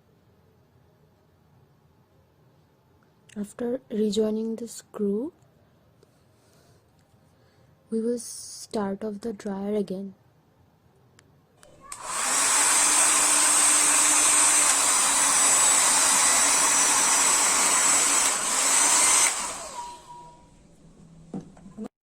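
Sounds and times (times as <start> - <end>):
hair dryer running: 11.6 - 20.4.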